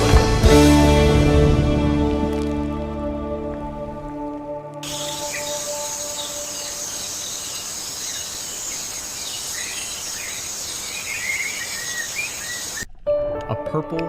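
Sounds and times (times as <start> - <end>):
bird chirps: 4.8 - 12.9
insects buzzing: 4.8 - 12.9.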